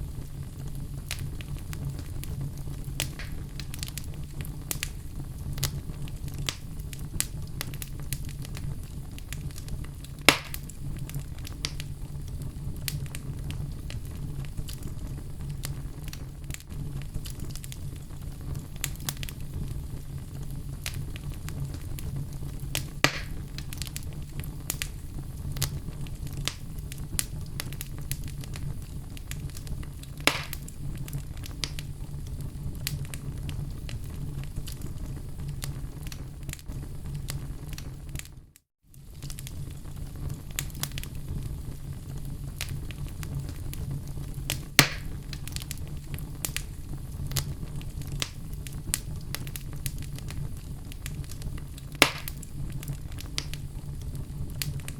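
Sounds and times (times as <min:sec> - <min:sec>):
loud fire pops: 0:00.0 - 0:54.9
low rumble of flame: 0:00.0 - 0:54.9
wood fire crackling: 0:00.0 - 0:54.9.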